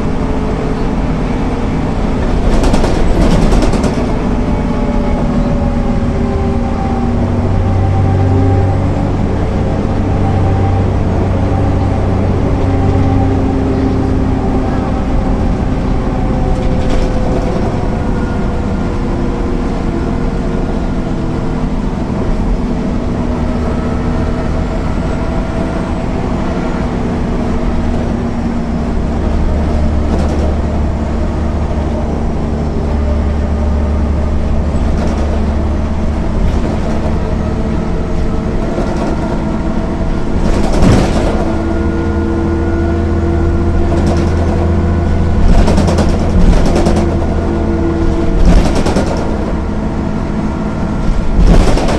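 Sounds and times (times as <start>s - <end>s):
bus engine running: 0.0s - 51.9s
knocks and rattles: 2.1s - 4.4s, 29.4s - 30.7s, 34.8s - 37.4s, 40.4s - 41.8s, 43.8s - 44.8s, 45.4s - 47.5s, 48.1s - 49.6s, 51.2s - 51.9s.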